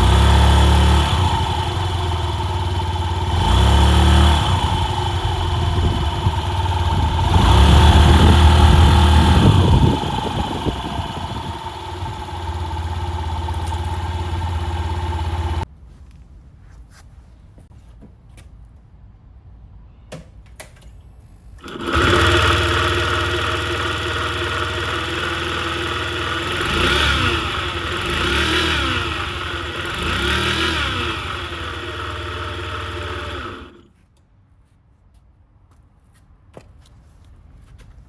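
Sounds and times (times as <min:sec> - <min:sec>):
scooter engine running and revving: 0:00.0 - 0:15.6, 0:21.6 - 0:33.9.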